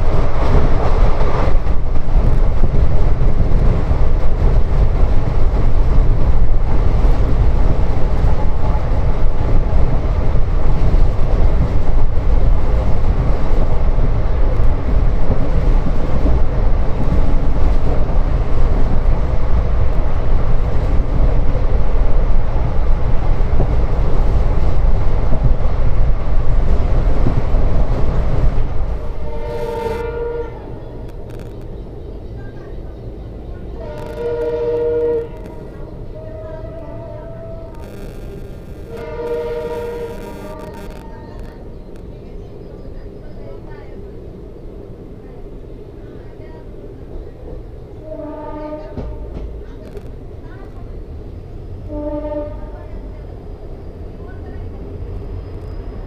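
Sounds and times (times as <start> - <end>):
train rumbling and rushing: 0.0 - 56.0
locomotive horn: 29.2 - 31.2, 33.8 - 41.5, 48.0 - 49.4, 51.8 - 52.8.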